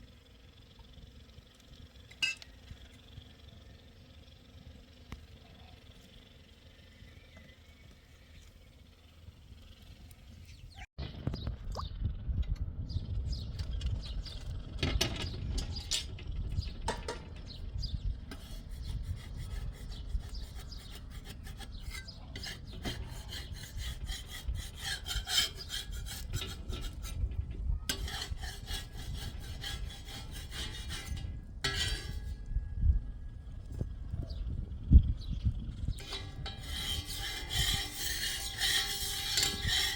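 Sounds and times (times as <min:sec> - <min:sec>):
rapid scraping and rasping strokes: 0:16.8 - 0:32.6, 0:35.8 - 0:39.9.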